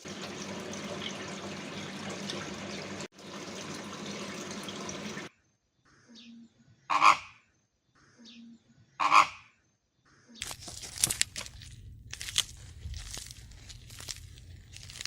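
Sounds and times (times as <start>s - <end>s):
rustling and clicking: 10.4s - 15.0s.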